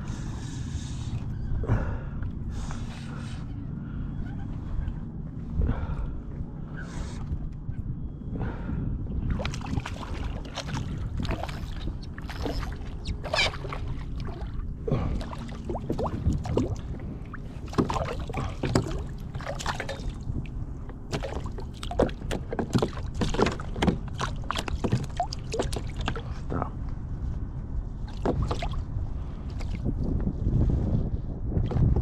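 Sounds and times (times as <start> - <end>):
steady low rumble: 0.0 - 32.0
water splashing around kayak: 9.2 - 26.5, 28.0 - 30.1.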